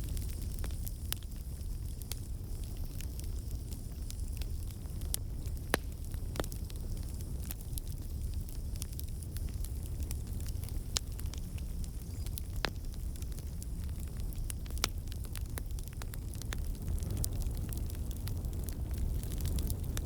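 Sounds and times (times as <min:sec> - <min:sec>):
burning wood crackling: 0:00.0 - 0:20.0
campfire flames rumbling: 0:00.0 - 0:20.0.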